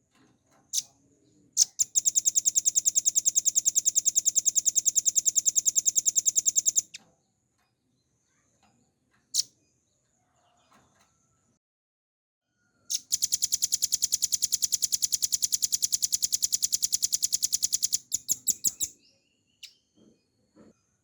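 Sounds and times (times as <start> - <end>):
bird trilling song: 0.7 - 1.0, 1.6 - 7.0, 12.9 - 20.2.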